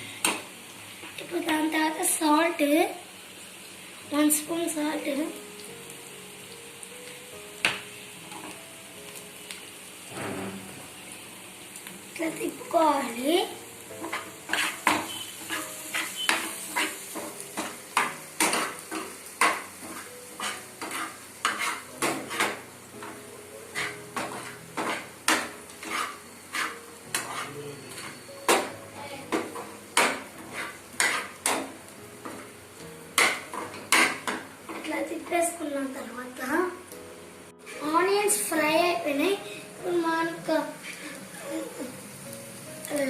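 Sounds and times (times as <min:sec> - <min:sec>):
onions sizzling in oil: 0:00.0 - 0:43.0
metal utensil scraping a pan: 0:14.0 - 0:28.7, 0:29.3 - 0:32.5, 0:33.2 - 0:34.9.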